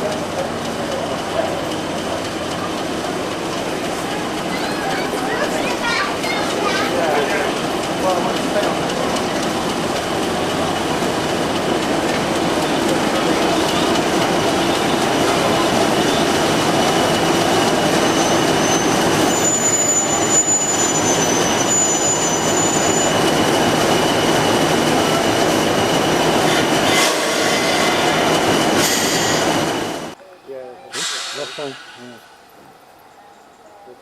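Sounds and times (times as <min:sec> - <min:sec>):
train rumbling past: 0:00.0 - 0:34.0
high wheel squeal: 0:11.8 - 0:30.1.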